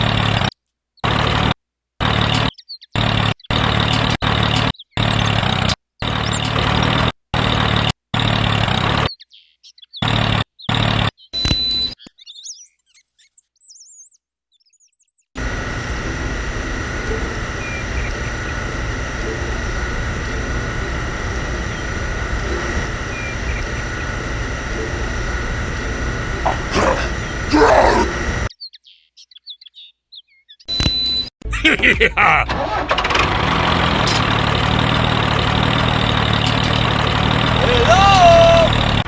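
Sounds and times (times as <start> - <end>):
mechanical hum with whine: 2.0 - 7.8, 11.4 - 12.0, 15.4 - 28.5, 30.7 - 39.0
birds chirping: 9.2 - 14.1, 14.7 - 32.4, 33.9 - 39.0.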